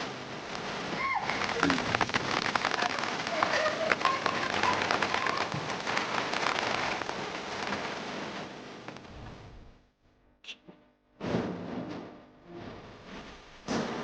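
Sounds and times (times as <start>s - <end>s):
rain and hail pattering: 0.0s - 9.8s
hailstones ticking: 0.4s - 9.1s.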